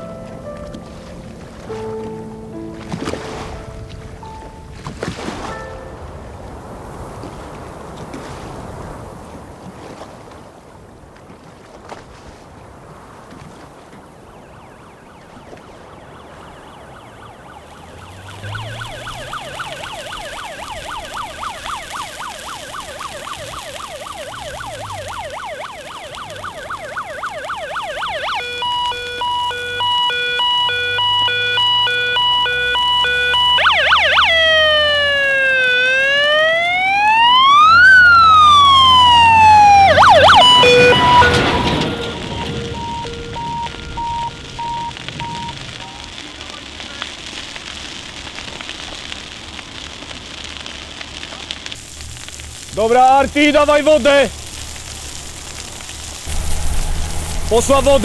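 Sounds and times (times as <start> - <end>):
fire engine siren: 0.0 - 2.2, 14.0 - 58.0
truck engine running low: 17.8 - 21.2, 37.5 - 46.0.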